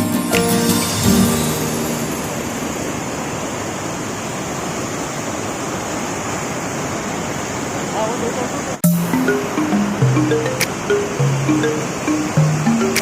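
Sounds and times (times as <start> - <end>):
background music: 0.0 - 3.2, 8.8 - 13.0
river water rushing: 0.0 - 13.0.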